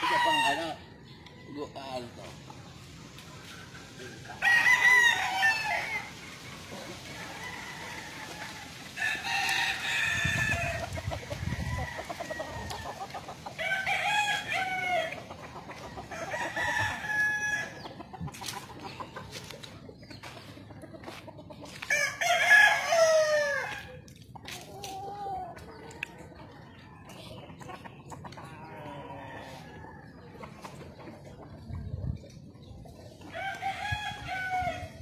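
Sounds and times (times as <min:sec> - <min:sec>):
roosters crowing: 0:00.0 - 0:02.3, 0:03.6 - 0:19.0, 0:21.7 - 0:24.0, 0:28.4 - 0:30.4, 0:33.2 - 0:35.0.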